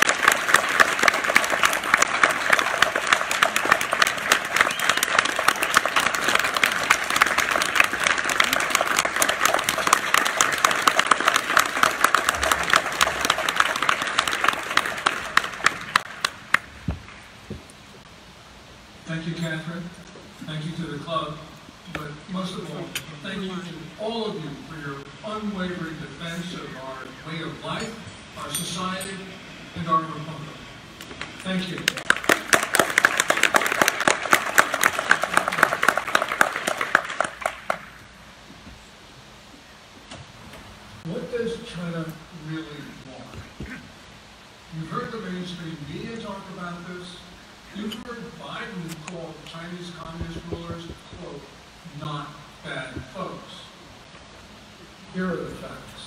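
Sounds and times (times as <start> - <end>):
audience applauding: 0.0 - 17.3, 31.2 - 38.0.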